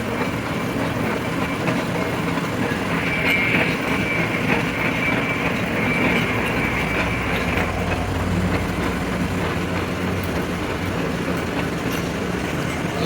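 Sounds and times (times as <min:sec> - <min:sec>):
lathe grinding steel: 0:00.0 - 0:13.0
high squeal: 0:02.6 - 0:08.1.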